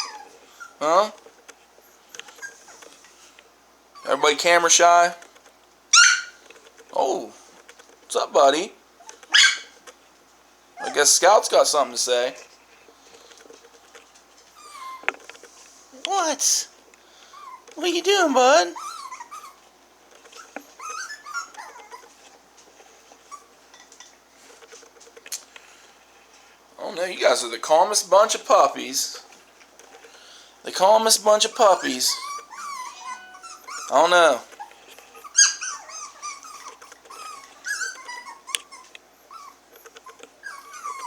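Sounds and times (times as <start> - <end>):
puppy whining: 0.0 - 1.2, 1.8 - 3.1, 3.9 - 4.8, 5.9 - 6.5, 9.0 - 9.8, 10.8 - 11.3, 14.4 - 15.4, 17.2 - 24.0, 31.1 - 41.0.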